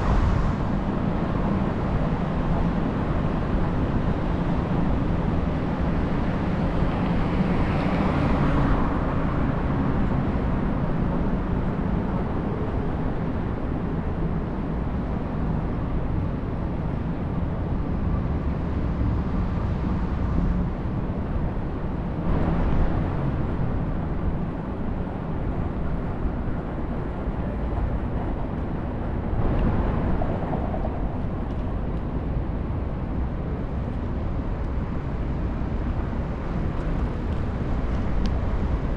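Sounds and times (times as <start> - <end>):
road noise rumble: 0.0 - 38.9
street traffic: 0.0 - 38.9
wind rush: 0.0 - 38.9.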